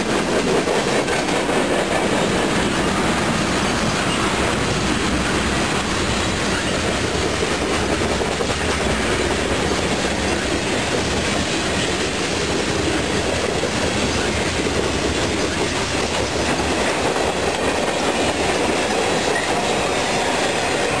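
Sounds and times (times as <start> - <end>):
freight train wheels on rail: 0.0 - 21.0.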